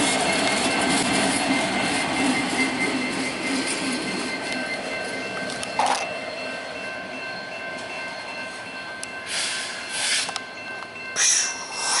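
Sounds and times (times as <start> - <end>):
crossing bell ringing: 0.0 - 12.0
freight train cars rolling past: 0.0 - 12.0
locomotive hissing: 9.1 - 12.0.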